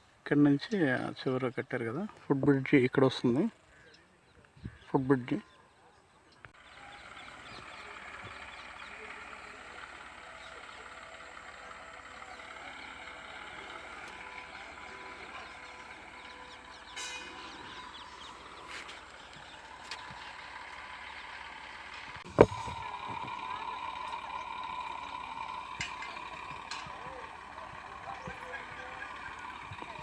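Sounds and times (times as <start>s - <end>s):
steady low hum: 6.6s - 30.0s.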